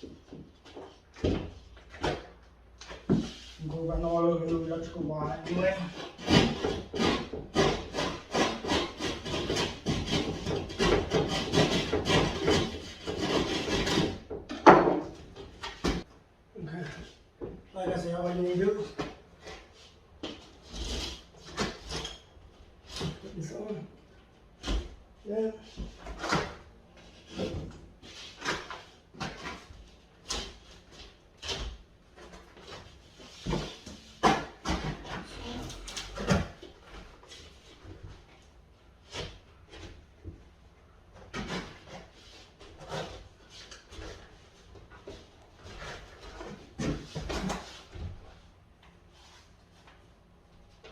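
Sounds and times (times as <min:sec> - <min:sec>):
hand saw cutting drywall: 0:05.4 - 0:16.1, 0:20.3 - 0:22.2, 0:25.8 - 0:26.6, 0:27.2 - 0:37.6, 0:41.2 - 0:44.4.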